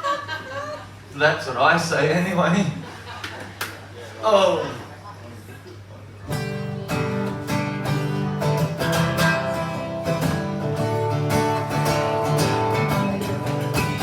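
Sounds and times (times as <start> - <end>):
acoustic guitar strumming chords: 6.3 - 14.0.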